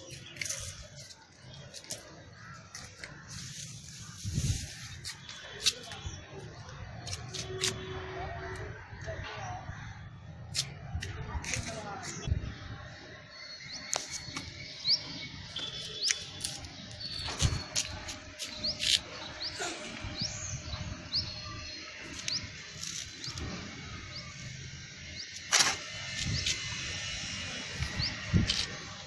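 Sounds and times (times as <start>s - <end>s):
small birds chirping: 13.4s - 28.8s.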